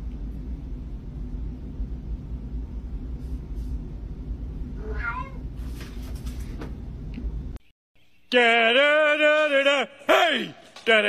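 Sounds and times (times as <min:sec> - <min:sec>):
low background rumble: 0:00.0 - 0:05.6
cat meowing: 0:04.8 - 0:05.4.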